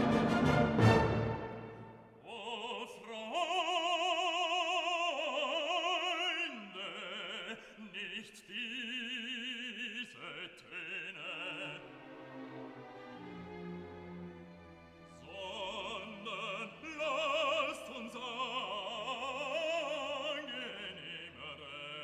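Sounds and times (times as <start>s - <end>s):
loud orchestral chord: 0.0s - 2.1s
operatic singing: 0.0s - 22.0s.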